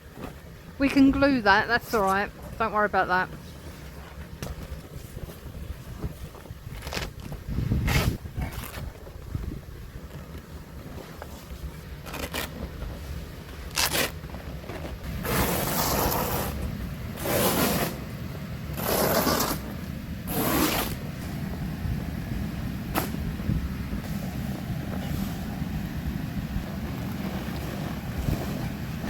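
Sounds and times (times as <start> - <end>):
wind rumble on microphone: 3.3 - 29.0
scraping strokes: 13.7 - 18.0, 18.8 - 19.7.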